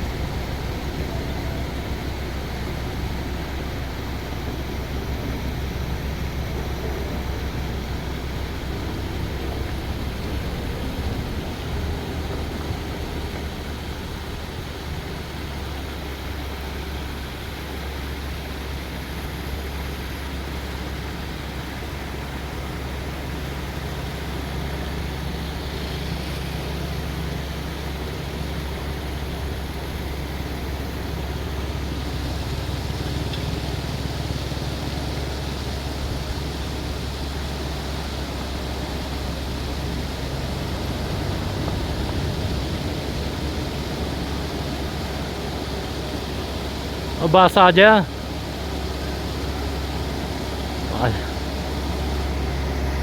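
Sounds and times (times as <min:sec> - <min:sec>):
waterfall roaring: 0:00.0 - 0:53.0.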